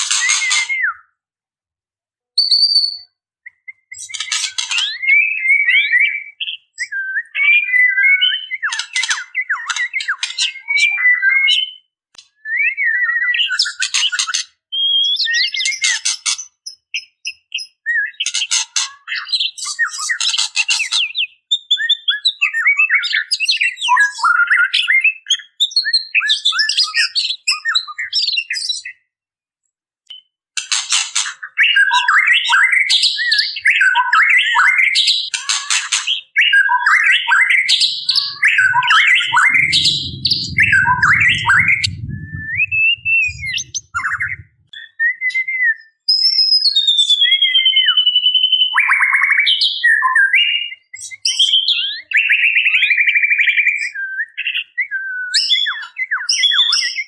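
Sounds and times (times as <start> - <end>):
low muffled rumble: 38.0 - 44.7.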